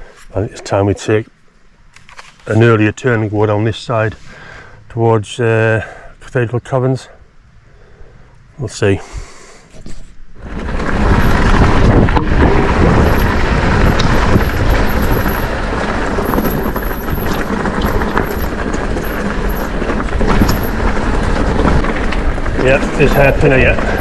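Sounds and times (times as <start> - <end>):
bike tyre rumble: 9.1 - 24.0
wind noise on microphone: 9.8 - 24.0.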